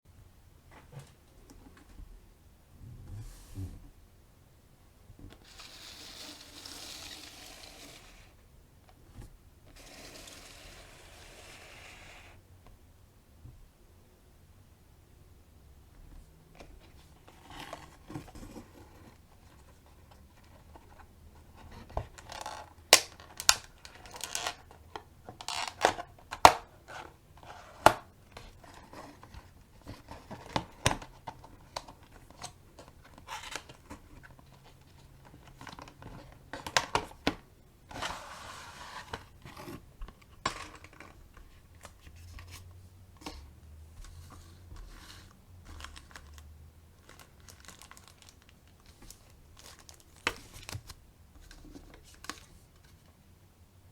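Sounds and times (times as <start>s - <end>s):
packaging tearing and rustling: 5.4s - 8.3s, 45.7s - 51.0s.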